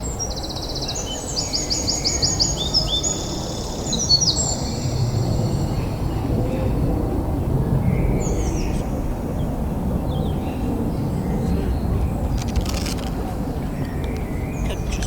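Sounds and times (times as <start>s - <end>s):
songbird trilling: 0.7s - 6.7s.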